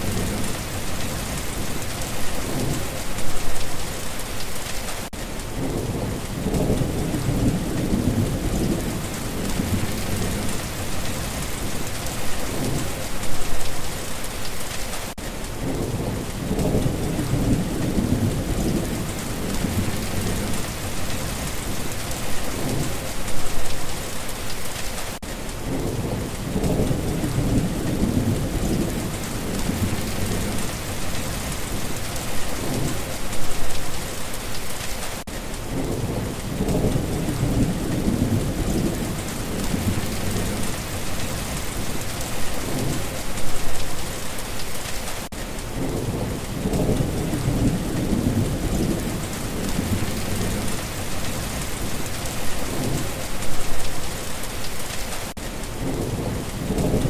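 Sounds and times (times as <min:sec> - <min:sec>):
low rolling thunder: 0:00.0 - 0:03.6, 0:05.5 - 0:13.6, 0:15.6 - 0:23.7, 0:25.6 - 0:33.7, 0:35.7 - 0:43.8, 0:45.7 - 0:53.9, 0:55.8 - 0:57.0
heavy rain: 0:00.0 - 0:57.0.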